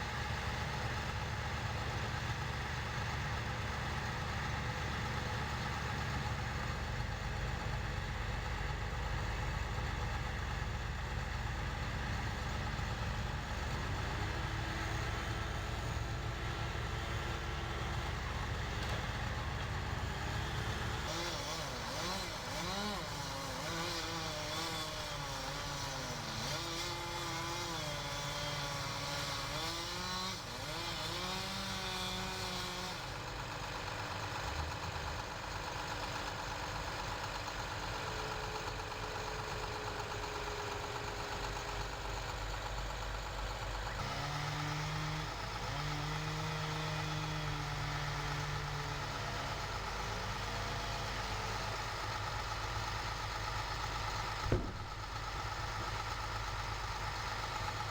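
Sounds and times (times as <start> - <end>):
machinery engine running: 47.5 - 57.9.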